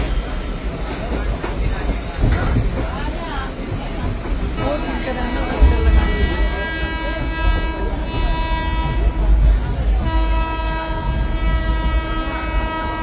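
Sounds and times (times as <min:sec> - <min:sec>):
moving train rumble: 0:00.0 - 0:13.0
train horn blast: 0:04.8 - 0:13.0.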